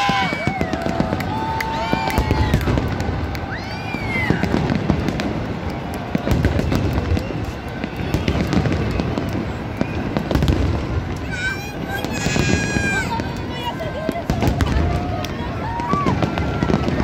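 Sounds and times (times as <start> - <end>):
falling firework whistle: 0.0 - 13.2
fireworks booms rumbling: 0.0 - 17.0
fireworks crackling and popping: 0.0 - 17.0.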